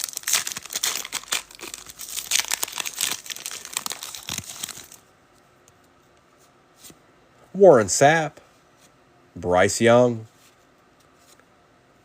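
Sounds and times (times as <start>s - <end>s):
wrapper crinkling and tearing: 0.0s - 5.0s.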